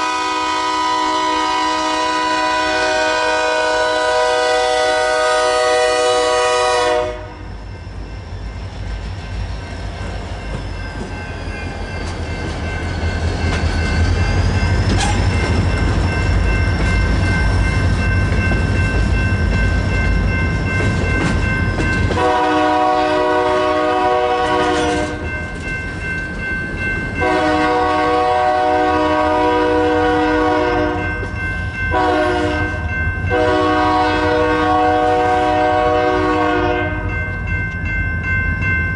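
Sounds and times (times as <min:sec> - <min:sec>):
locomotive air horn: 0:00.0 - 0:07.4, 0:22.2 - 0:25.2, 0:27.2 - 0:31.1, 0:31.9 - 0:37.1.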